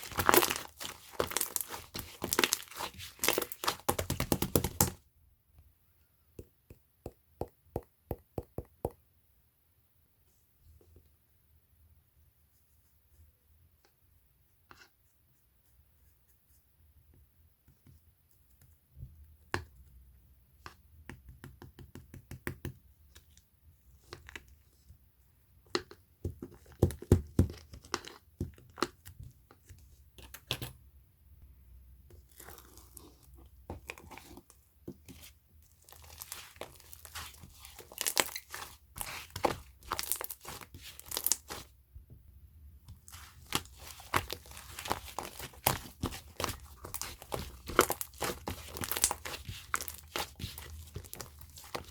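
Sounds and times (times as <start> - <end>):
slime crackling and popping: 0.0 - 5.0, 35.8 - 41.6, 43.1 - 51.9.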